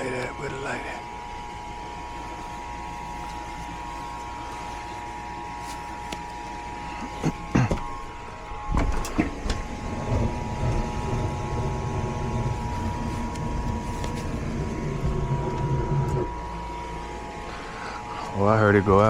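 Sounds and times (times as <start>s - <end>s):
furnace unit hum: 0.0s - 19.0s
burner flame rumble: 6.4s - 18.8s.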